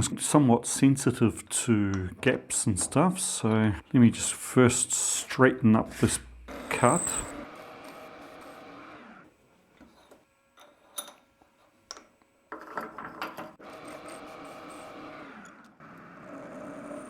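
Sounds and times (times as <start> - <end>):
machine tool motor running: 6.5 - 9.3, 13.6 - 17.0.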